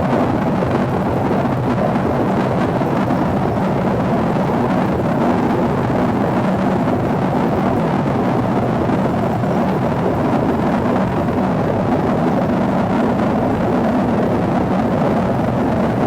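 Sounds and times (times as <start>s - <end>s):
airflow roar inside jet cabin: 0.0s - 16.0s.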